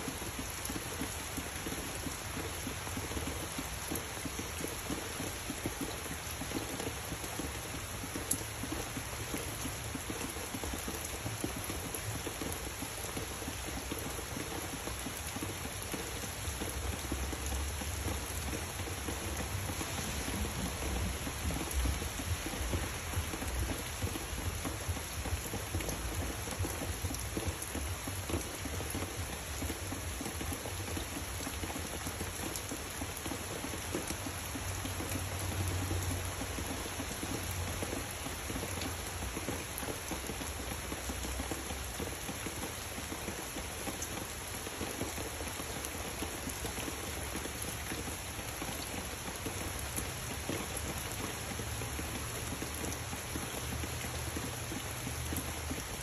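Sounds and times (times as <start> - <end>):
rain pattering on leaves: 0.0 - 56.0.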